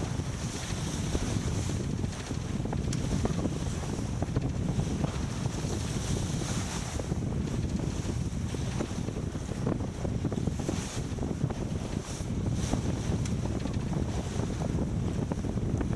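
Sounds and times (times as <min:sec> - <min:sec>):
wind buffeting microphone: 0:00.0 - 0:15.9.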